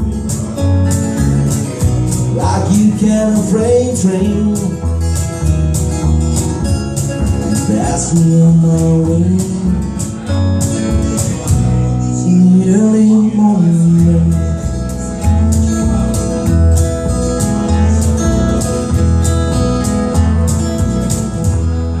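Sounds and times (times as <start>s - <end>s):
percussion strikes: 0.0s - 11.9s
bass line: 0.0s - 22.0s
guitar: 0.0s - 22.0s.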